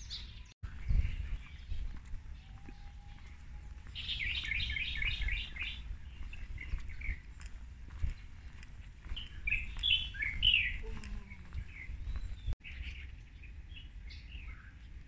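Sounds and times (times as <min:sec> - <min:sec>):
small birds chirping: 0:00.0 - 0:15.0
low outdoor rumble: 0:00.7 - 0:12.6.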